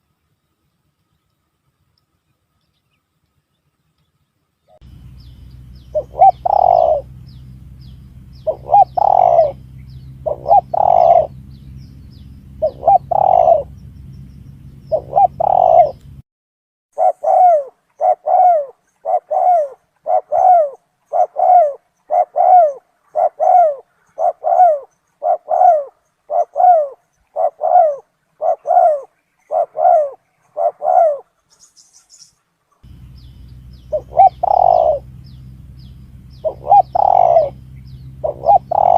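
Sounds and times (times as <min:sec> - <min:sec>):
dove cooing: 0:04.8 - 0:16.2, 0:17.0 - 0:31.4, 0:32.8 - 0:38.9
steady low hum: 0:04.8 - 0:16.2, 0:32.8 - 0:38.9.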